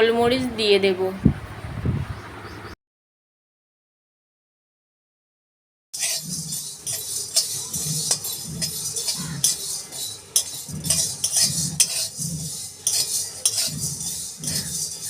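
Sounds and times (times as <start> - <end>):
spatula scraping spices in a pan: 6.0 - 15.0.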